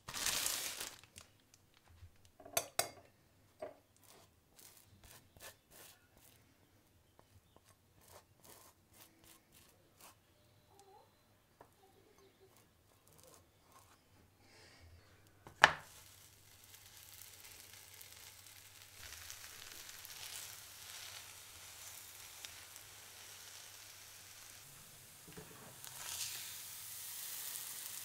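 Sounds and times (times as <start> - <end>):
bread sizzling in frying pan: 0.0 - 1.1, 15.6 - 28.0
knife scraping on bread: 4.0 - 6.4, 8.0 - 10.2, 12.5 - 14.0.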